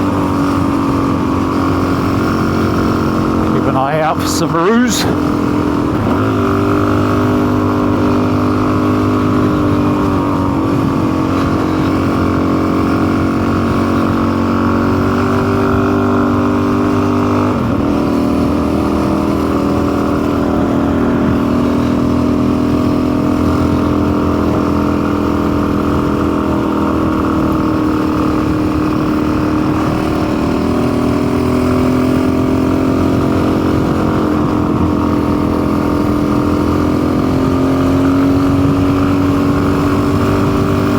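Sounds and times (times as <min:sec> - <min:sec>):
motorcycle engine running: 0:00.0 - 0:04.2, 0:05.1 - 0:40.9.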